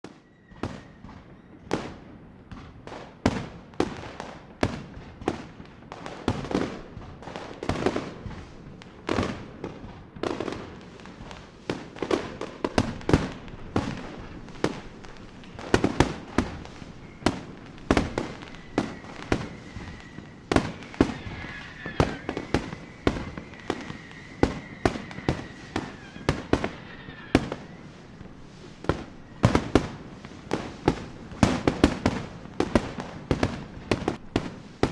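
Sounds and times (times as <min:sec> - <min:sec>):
fireworks bangs: 0:00.6 - 0:34.9
wavering high whistle: 0:16.1 - 0:34.1.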